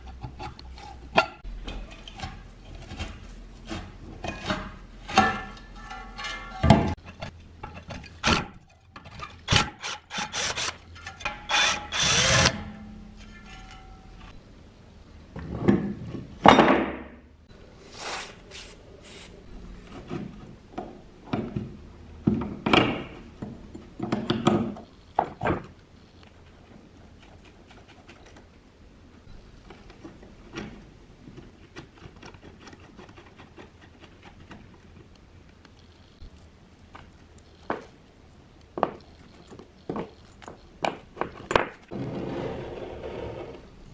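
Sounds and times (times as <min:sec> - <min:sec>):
workshop parts knocking and scraping: 0:00.0 - 0:14.4, 0:15.3 - 0:17.2, 0:19.8 - 0:25.8, 0:29.3 - 0:35.1, 0:38.7 - 0:43.9.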